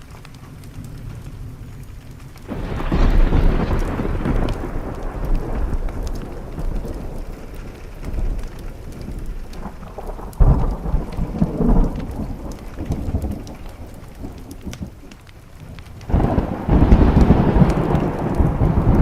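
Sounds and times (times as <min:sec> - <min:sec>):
steady rain: 0:00.0 - 0:19.0
thunder rumbling: 0:00.0 - 0:19.0.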